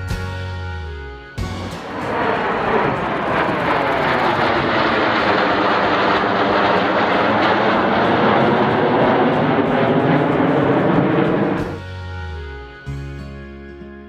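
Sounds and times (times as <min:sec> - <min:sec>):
jet aircraft flying past: 0:01.6 - 0:11.8.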